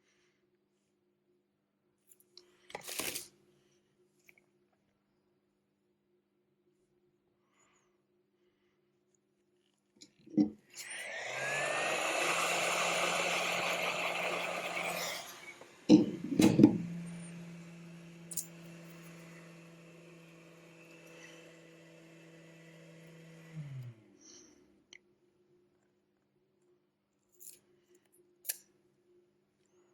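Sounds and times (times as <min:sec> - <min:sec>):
small electric motor running: 0:10.8 - 0:24.2.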